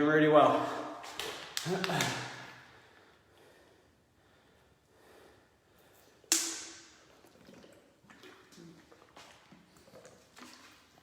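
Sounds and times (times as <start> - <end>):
man breathing quietly: 2.6 - 6.3.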